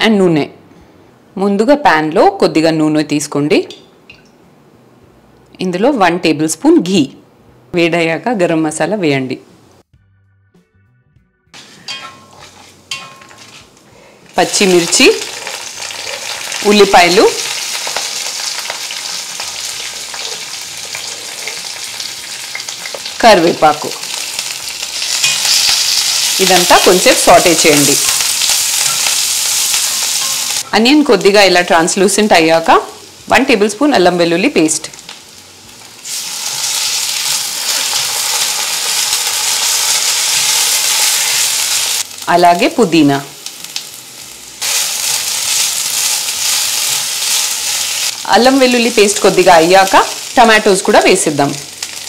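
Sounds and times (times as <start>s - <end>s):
spatula stirring in pan: 11.6s - 13.7s
oil sizzling with onions frying: 11.6s - 52.0s.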